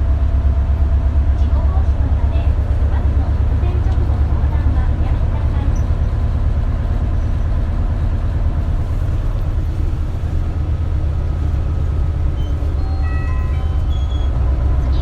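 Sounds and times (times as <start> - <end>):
bus diesel engine drone: 0.0 - 15.0.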